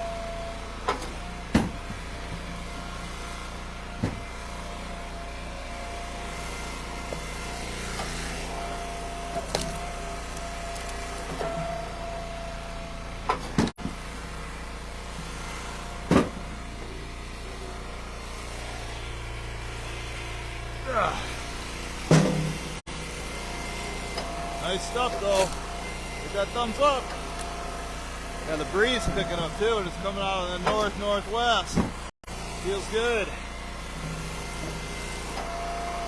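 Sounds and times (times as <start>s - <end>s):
log splitter engine running: 0.0s - 36.0s
sharp knocks of splitting wood: 0.9s - 2.5s, 22.1s - 22.6s.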